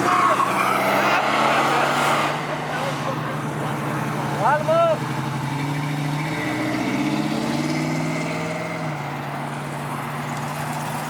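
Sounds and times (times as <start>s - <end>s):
car engine passing slowly: 0.0s - 11.0s.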